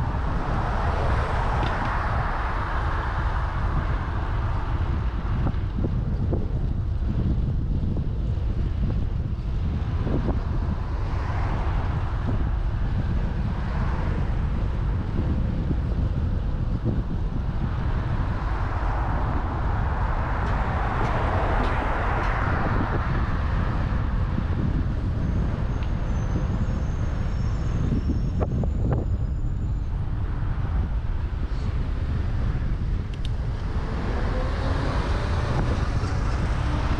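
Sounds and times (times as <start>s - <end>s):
road traffic noise: 0.0s - 36.9s
wind rumbling on microphone: 0.0s - 36.9s
vehicle passing: 33.4s - 36.9s.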